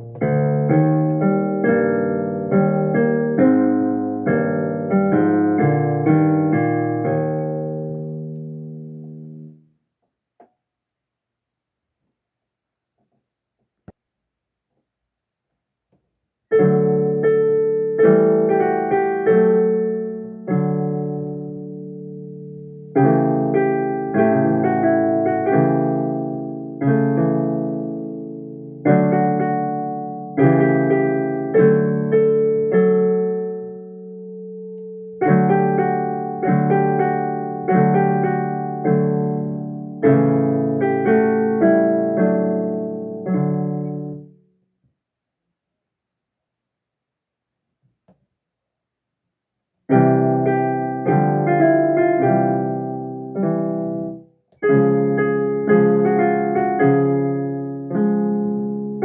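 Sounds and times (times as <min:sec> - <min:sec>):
piano piece: 0:00.0 - 0:09.7, 0:16.5 - 0:44.4, 0:49.9 - 0:59.0.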